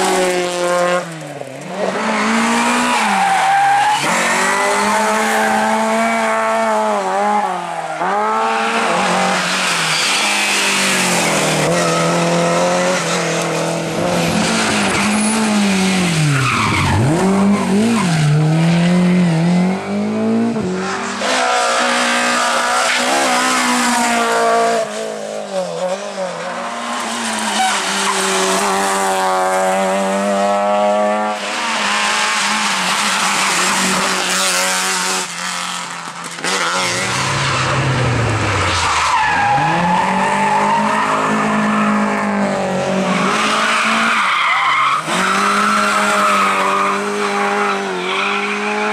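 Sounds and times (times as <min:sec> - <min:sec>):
rally car engines revving: 0:00.0 - 0:48.9
tyres squealing and skidding: 0:01.8 - 0:19.3, 0:20.7 - 0:28.8, 0:36.4 - 0:48.9.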